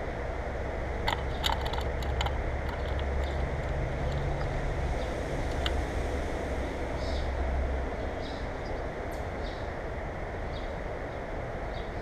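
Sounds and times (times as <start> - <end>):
steady low rumble: 0.0 - 12.0
bird clicking on feeder grid: 1.0 - 4.6, 5.4 - 5.8.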